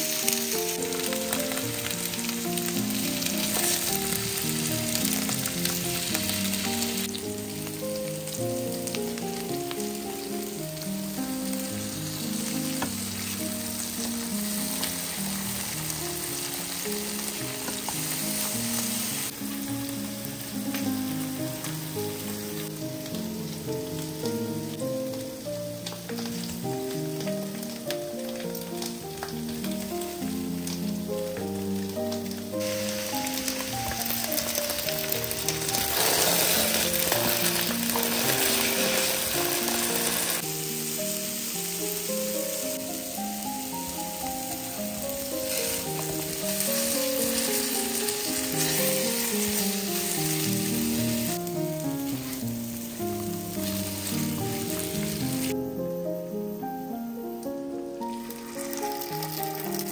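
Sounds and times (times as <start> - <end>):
background music: 0.0 - 59.9
oil sizzling in a frying pan: 0.0 - 59.9.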